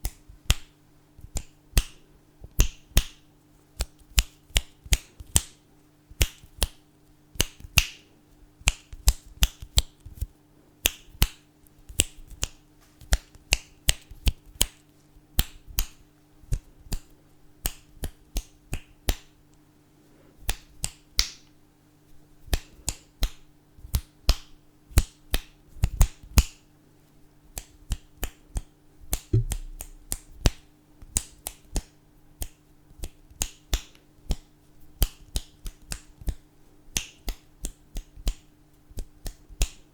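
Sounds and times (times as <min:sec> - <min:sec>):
fingers snapping: 0:00.0 - 0:02.0, 0:03.8 - 0:05.5, 0:06.2 - 0:06.8, 0:08.6 - 0:14.8, 0:15.4 - 0:19.3, 0:20.5 - 0:21.4, 0:27.5 - 0:38.4, 0:39.0 - 0:39.8.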